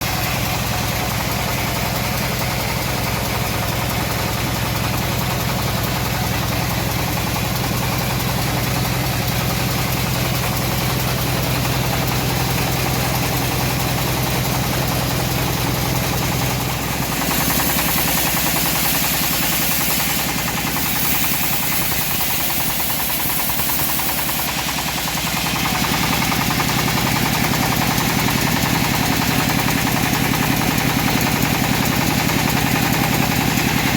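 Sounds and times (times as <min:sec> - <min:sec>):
sawmill engine humming: 0:00.0 - 0:33.9
high hiss: 0:17.1 - 0:27.1.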